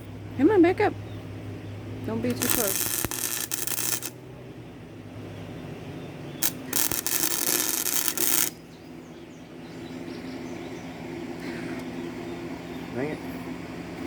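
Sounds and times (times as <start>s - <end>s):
low steady hum: 0.0s - 5.7s
arc welding sizzling: 2.3s - 4.2s, 6.4s - 8.7s.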